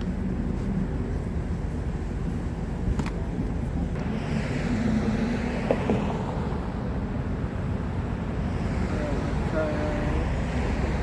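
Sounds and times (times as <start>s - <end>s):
low traffic rumble: 0.0s - 11.0s
vehicle passing: 3.9s - 11.0s.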